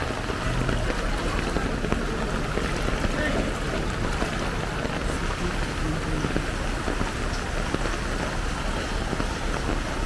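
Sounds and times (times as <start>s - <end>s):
heavy rain falling: 0.0s - 10.0s
rushing floodwater: 0.0s - 10.0s.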